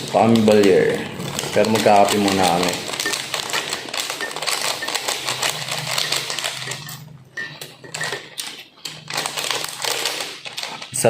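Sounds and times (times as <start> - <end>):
cups and spoons clinking: 1.6 - 9.1.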